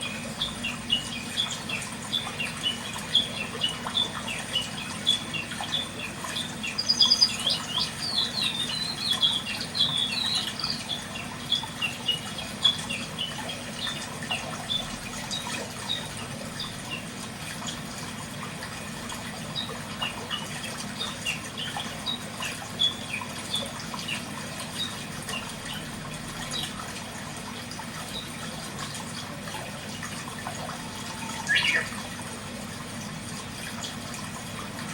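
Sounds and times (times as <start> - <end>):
small birds chirping: 0.0 - 14.8, 30.9 - 32.0.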